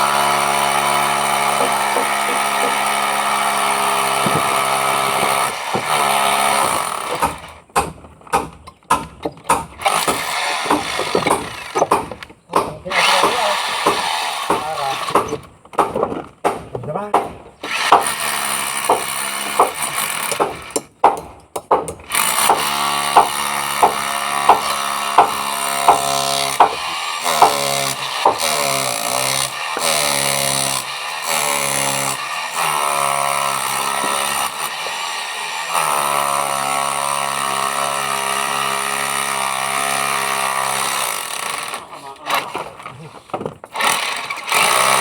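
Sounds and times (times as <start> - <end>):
sharp drill knocks: 0.5 - 30.8.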